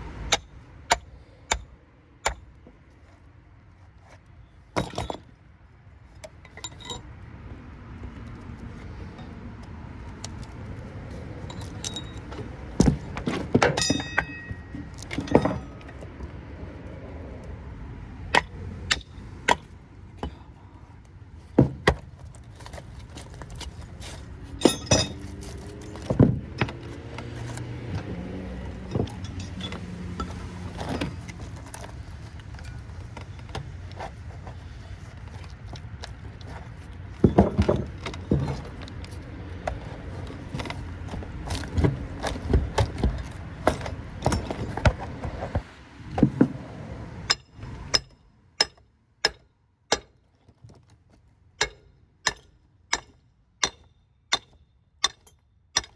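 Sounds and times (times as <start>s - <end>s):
hand tools knocking on metal: 11.5s - 16.0s, 24.6s - 25.4s.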